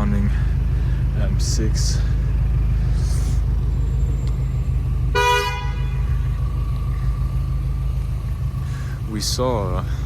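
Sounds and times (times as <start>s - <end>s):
car engine rumbling low: 0.0s - 10.0s
car horn toot: 5.0s - 6.2s.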